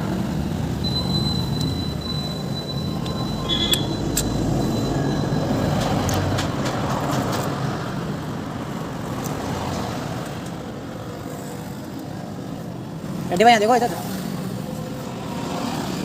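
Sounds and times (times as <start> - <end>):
motor vehicle running: 0.0 - 10.5.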